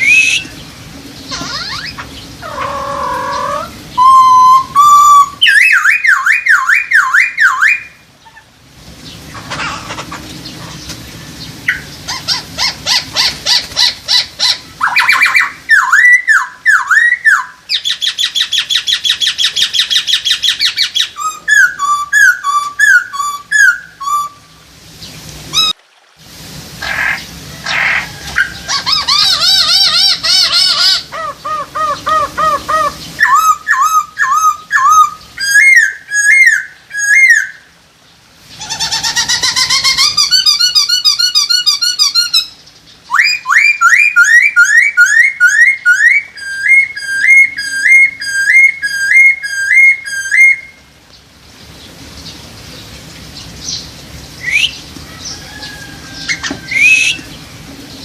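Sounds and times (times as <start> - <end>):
bird singing whistled phrases: 0.0 - 0.6, 1.3 - 2.0, 2.6 - 8.0, 14.8 - 24.4, 32.8 - 37.6, 39.8 - 50.8, 54.4 - 54.8, 56.2 - 57.3.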